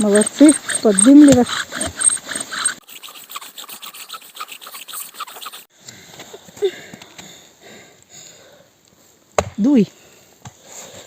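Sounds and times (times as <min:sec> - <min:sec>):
bow drill spindle rasping: 0:00.0 - 0:05.7.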